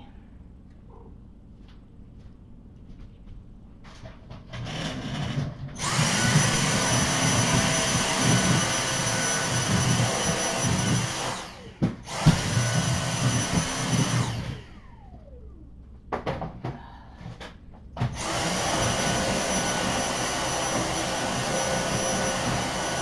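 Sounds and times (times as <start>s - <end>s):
vacuum cleaner running: 3.8s - 15.8s, 18.0s - 23.0s.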